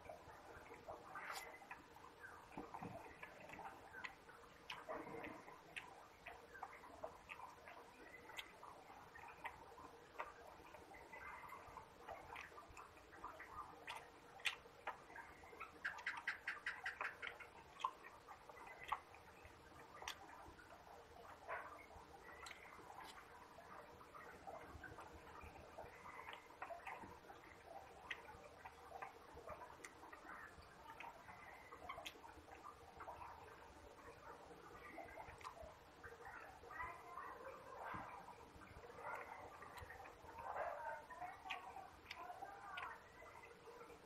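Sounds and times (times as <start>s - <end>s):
lip smacks: 0.0s - 36.8s, 37.7s - 44.0s
person chewing: 0.7s - 8.6s, 22.4s - 23.2s.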